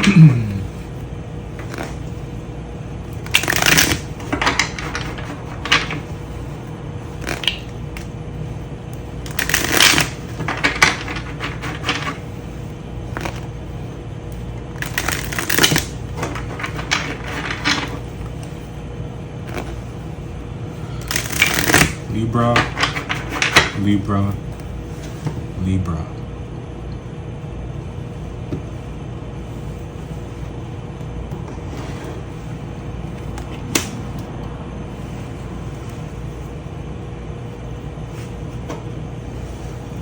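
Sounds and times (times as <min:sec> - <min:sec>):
low background hum: 0:00.0 - 0:40.0
cards being shuffled: 0:01.6 - 0:02.1, 0:03.1 - 0:08.1, 0:09.3 - 0:12.4, 0:13.1 - 0:13.6, 0:14.7 - 0:18.6, 0:19.4 - 0:20.0, 0:20.8 - 0:25.4.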